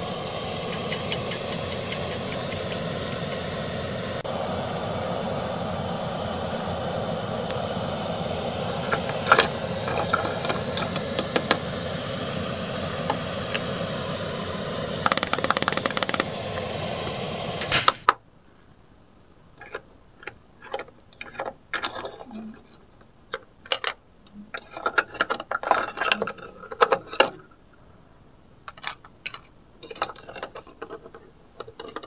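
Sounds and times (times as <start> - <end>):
toy steam effect whirring hiss: 0.0 - 18.1
plastic spatula clicking in pot: 0.7 - 2.9.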